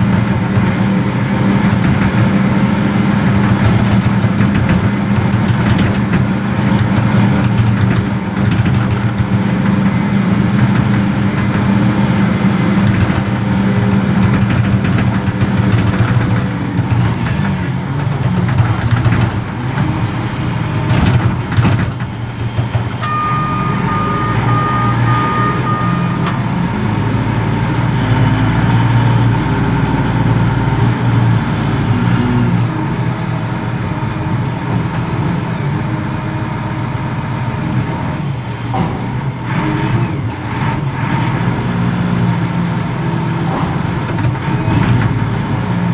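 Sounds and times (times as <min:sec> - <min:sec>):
knocks and clatter: 0:00.0 - 0:30.4
heavy diesel engine running: 0:00.0 - 0:45.9
reversing alarm beeping: 0:22.6 - 0:28.7.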